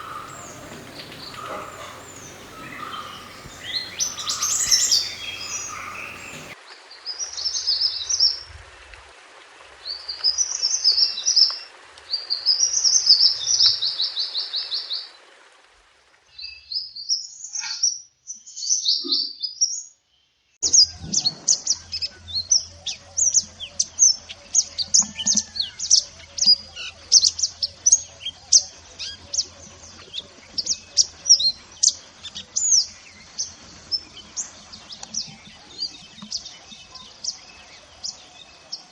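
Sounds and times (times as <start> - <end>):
songbird twittering: 0.0 - 6.6.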